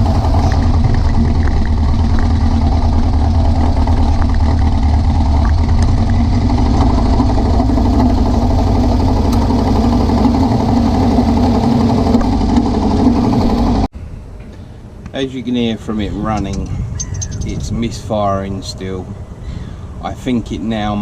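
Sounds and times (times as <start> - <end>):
buggy engine running: 0.0 - 13.9
road noise: 0.0 - 21.0
wind noise: 0.0 - 21.0.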